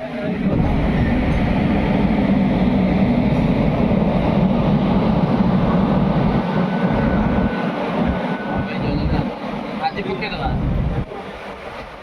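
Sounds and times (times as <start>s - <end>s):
train wagons rumbling on track: 0.0s - 12.0s.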